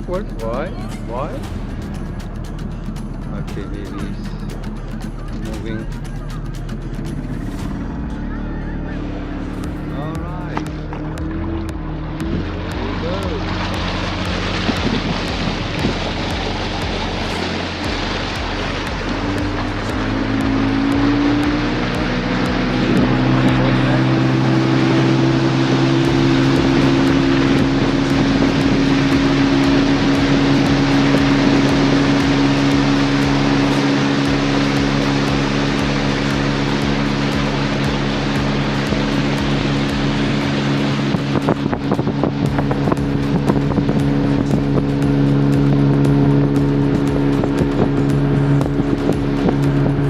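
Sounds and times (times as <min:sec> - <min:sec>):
motorboat engine running: 0:00.0 - 0:50.0
rushing water and wind: 0:00.0 - 0:50.0.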